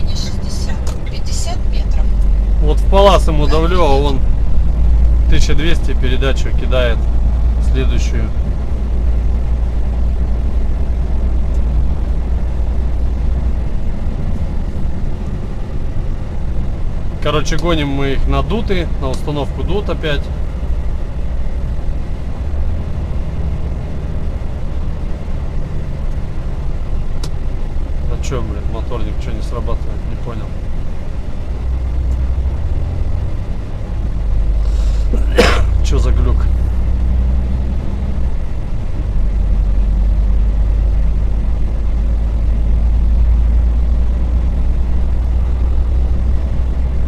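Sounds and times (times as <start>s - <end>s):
truck engine droning: 0.0s - 47.0s.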